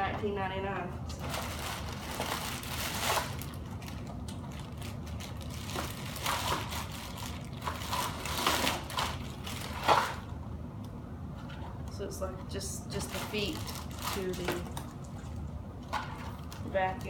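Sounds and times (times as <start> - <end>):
packaging crinkling and rustling: 1.1 - 10.4, 13.0 - 17.0.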